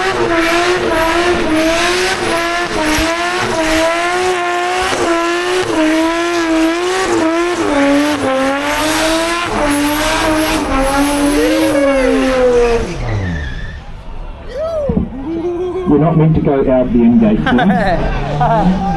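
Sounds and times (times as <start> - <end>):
car engine revving high: 0.0 - 14.4.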